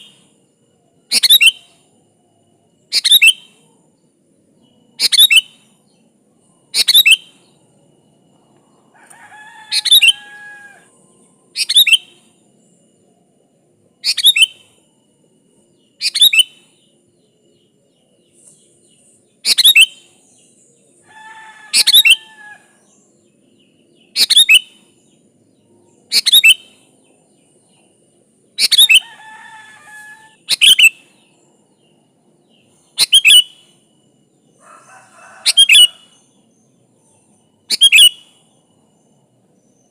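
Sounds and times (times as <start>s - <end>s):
bird singing sharp calls: 1.1s - 1.8s, 2.9s - 3.6s, 5.0s - 5.8s, 6.7s - 7.5s, 9.4s - 10.8s, 11.6s - 12.3s, 14.0s - 14.8s, 15.9s - 16.9s, 19.4s - 20.6s, 21.2s - 23.1s, 23.9s - 25.2s, 25.9s - 26.9s, 28.6s - 31.4s, 32.6s - 33.8s, 34.9s - 36.6s, 37.7s - 38.6s
soft warbled bird phrases: 6.6s - 7.4s, 9.1s - 10.9s, 21.0s - 22.8s, 28.6s - 31.2s, 32.8s - 33.5s, 34.6s - 36.2s.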